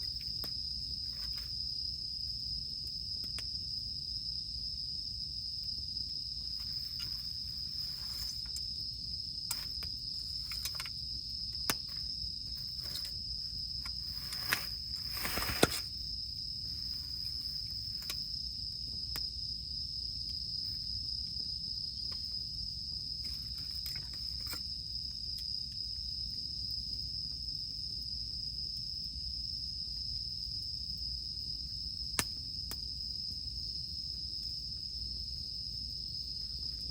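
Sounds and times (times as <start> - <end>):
campfire crackling and popping: 0.0 - 23.2, 32.0 - 35.9
cicadas droning: 0.0 - 36.9.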